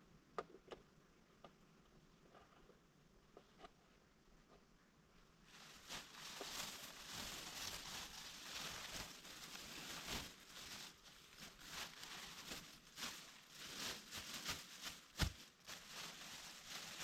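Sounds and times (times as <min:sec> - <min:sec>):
leaves and twigs rustling: 0:05.4 - 0:17.0.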